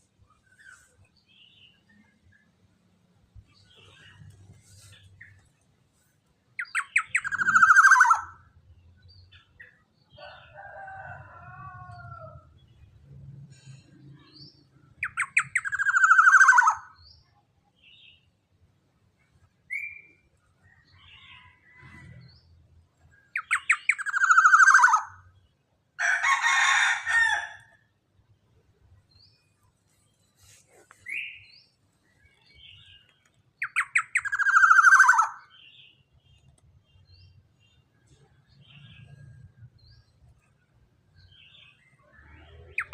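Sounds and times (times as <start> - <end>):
harsh raspy bird call: 6.6 - 8.4, 15.0 - 17.0, 23.4 - 25.2, 33.6 - 35.5
oriole calling: 6.6 - 8.4
bird calling with trill: 6.6 - 8.6, 15.0 - 17.0, 23.3 - 25.3, 32.3 - 36.0.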